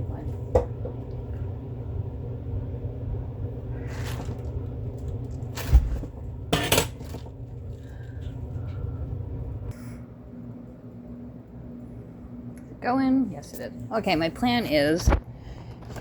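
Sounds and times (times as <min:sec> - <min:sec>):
steady low rumble: 0:07.2 - 0:16.0.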